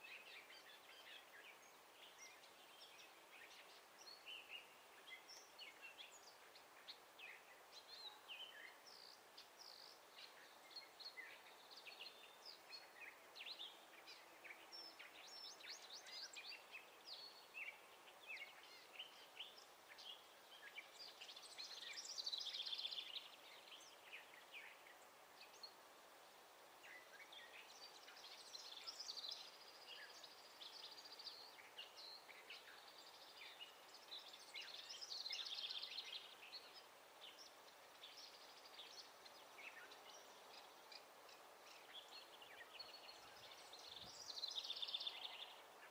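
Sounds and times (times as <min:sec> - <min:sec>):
faint songbirds chirping: 0:00.0 - 0:45.9.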